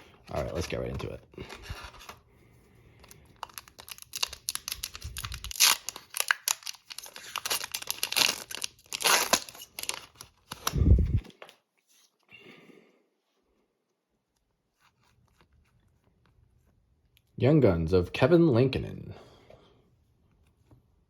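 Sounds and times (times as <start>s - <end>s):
packaging ripping and crinkling: 3.0s - 10.8s.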